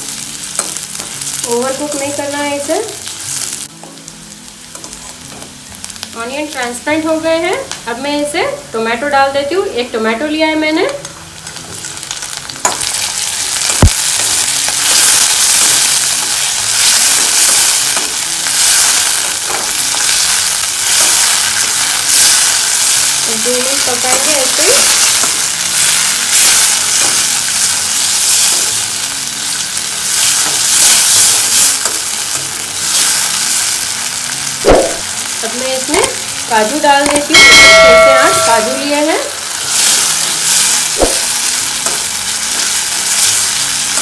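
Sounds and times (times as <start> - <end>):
tomatoes sizzling in hot oil: 0.0 - 44.0
sharp knock: 34.7 - 35.0.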